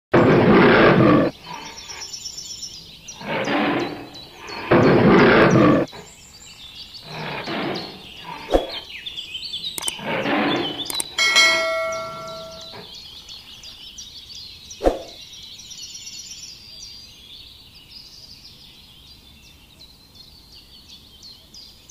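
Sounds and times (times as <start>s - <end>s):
tiger roaring: 0.2s - 2.0s, 3.1s - 6.0s, 7.0s - 8.8s, 9.8s - 12.8s
bell-like notification chime: 11.2s - 12.8s.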